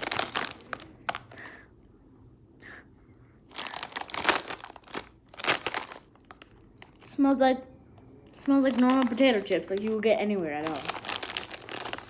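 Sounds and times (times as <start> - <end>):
plastic bag crinkling: 0.0 - 1.5, 3.5 - 7.2, 8.3 - 12.0.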